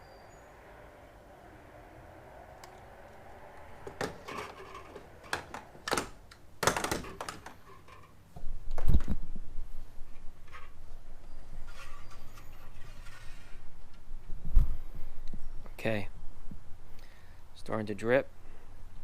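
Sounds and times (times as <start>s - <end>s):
handling clicks and knocks: 3.8s - 9.2s.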